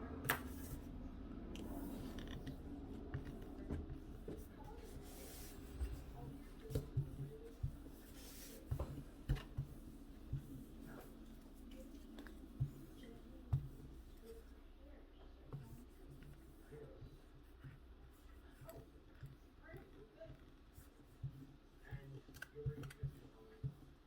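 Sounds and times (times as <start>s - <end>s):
soft taps: 8.6s - 10.7s, 12.0s - 14.0s.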